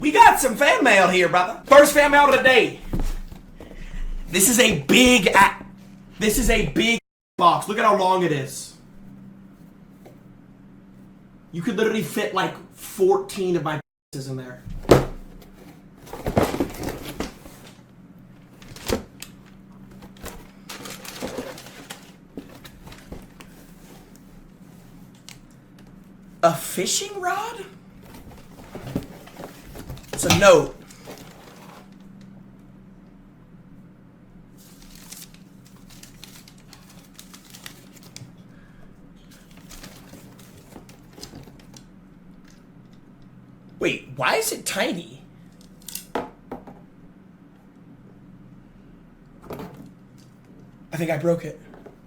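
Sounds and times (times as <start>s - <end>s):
steady low hum: 0.0s - 52.0s
box rustling and scraping: 1.7s - 4.2s, 14.7s - 17.8s, 19.8s - 25.1s, 28.0s - 32.0s
packaging crinkling and rustling: 18.5s - 24.2s, 28.1s - 32.0s, 34.6s - 38.4s, 39.4s - 41.8s.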